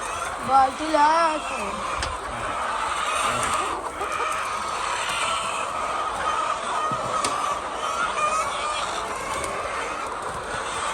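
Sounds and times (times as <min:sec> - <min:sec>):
hens clucking: 0:00.0 - 0:10.9.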